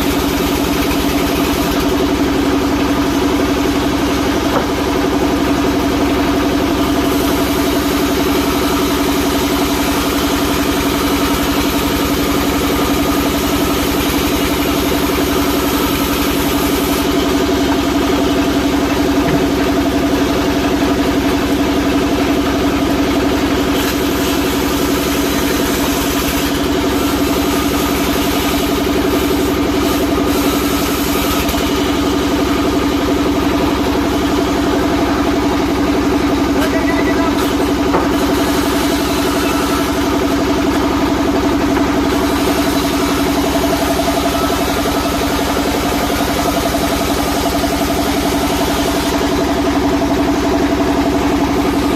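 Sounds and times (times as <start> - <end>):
sawmill machine humming: 0.0 - 51.9.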